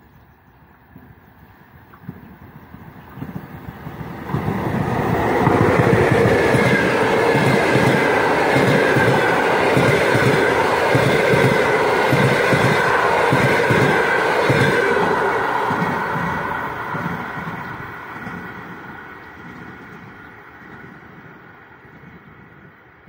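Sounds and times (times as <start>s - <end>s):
electric locomotive passing: 0.0s - 23.0s.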